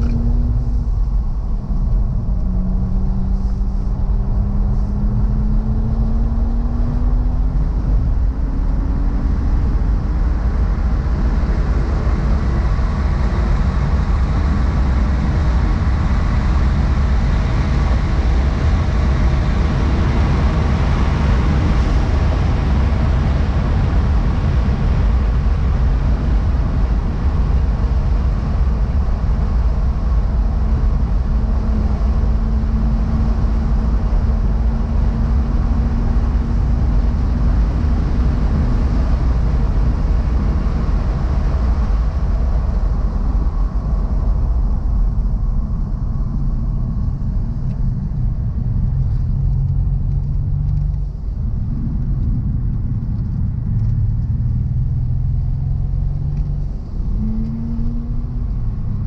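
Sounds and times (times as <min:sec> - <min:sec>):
car engine accelerating: 0:00.0 - 0:59.0
road and wind noise: 0:00.0 - 0:59.0.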